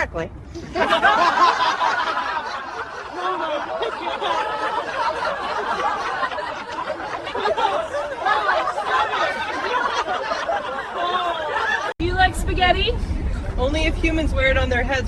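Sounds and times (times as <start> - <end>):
people laughing and giggling: 0.6 - 12.0.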